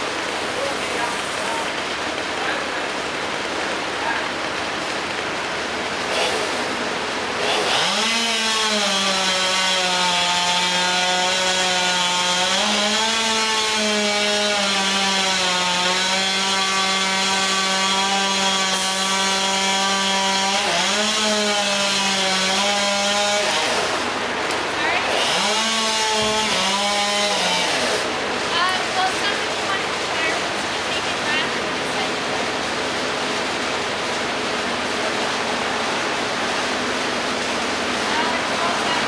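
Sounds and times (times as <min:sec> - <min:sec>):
chainsaw running at high revs: 0:06.0 - 0:24.3, 0:25.0 - 0:28.3.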